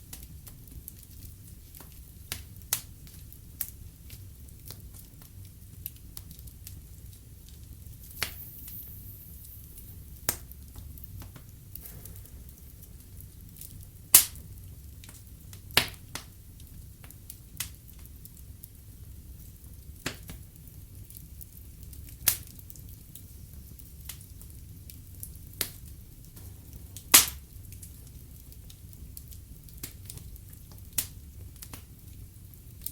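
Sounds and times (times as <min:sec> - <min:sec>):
flames rumbling: 0:00.0 - 0:32.9
logs crackling and popping: 0:19.4 - 0:32.9.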